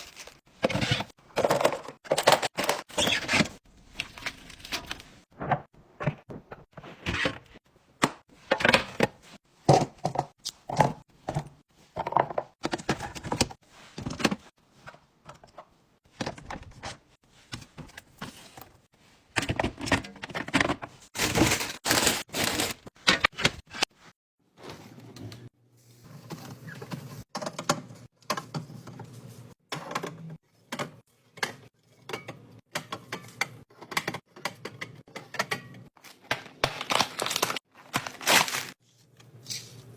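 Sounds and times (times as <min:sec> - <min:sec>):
food containers tapping and knocking: 0:08.0 - 0:13.6
packaging rustling: 0:21.2 - 0:22.9, 0:36.6 - 0:38.8.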